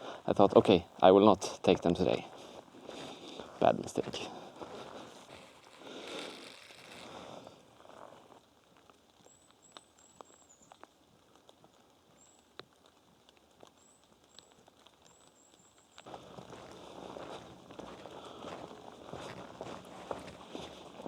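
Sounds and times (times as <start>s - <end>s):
rain dripping ticks: 0.0s - 21.0s
footsteps on forest floor: 1.8s - 8.4s, 16.0s - 21.0s.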